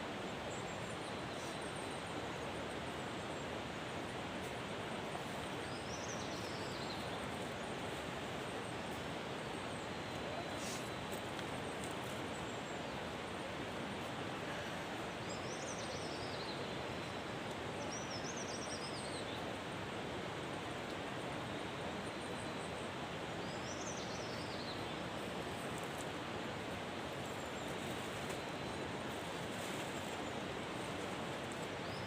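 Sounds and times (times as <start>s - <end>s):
songbird singing: 5.2s - 13.1s, 14.5s - 19.6s, 21.4s - 26.0s.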